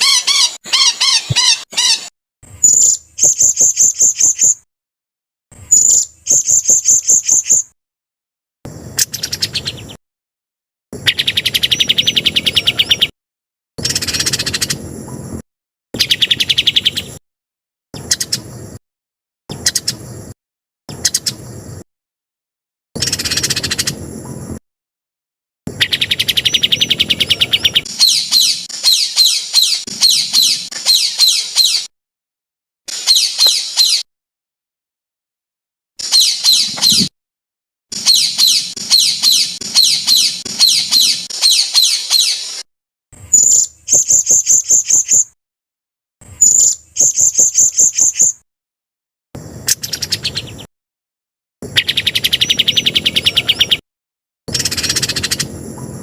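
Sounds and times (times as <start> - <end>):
songbird chirping and trilling: 0.0 - 4.6, 5.7 - 7.8, 8.9 - 10.0, 11.0 - 13.1, 13.8 - 15.4, 16.0 - 17.2, 18.0 - 18.6, 19.5 - 20.1, 20.9 - 21.6, 23.0 - 24.5, 25.7 - 31.9, 32.9 - 34.1, 36.0 - 37.1, 38.0 - 42.6, 43.3 - 45.4, 46.4 - 48.4, 49.6 - 50.7, 51.6 - 53.8, 54.5 - 56.0.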